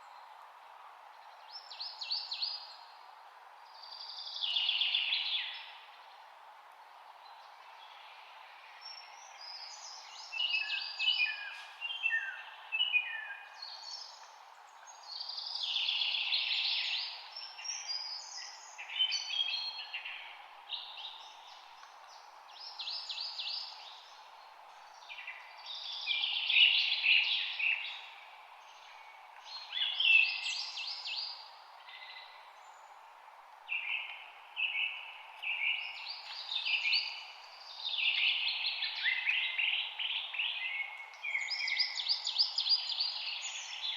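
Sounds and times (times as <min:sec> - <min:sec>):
faint steady hiss: 0:00.0 - 0:43.9
songbirds chirping and trilling: 0:00.0 - 0:43.9.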